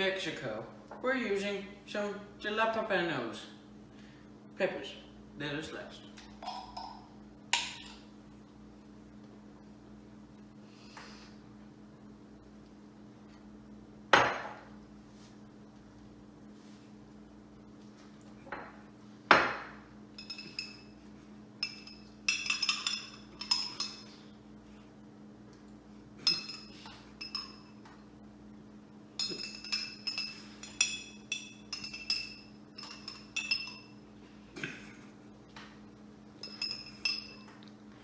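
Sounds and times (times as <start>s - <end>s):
steady low hum: 0.0s - 38.0s
metal utensil clinking on dishes: 21.6s - 24.1s, 29.2s - 33.9s, 36.4s - 37.4s.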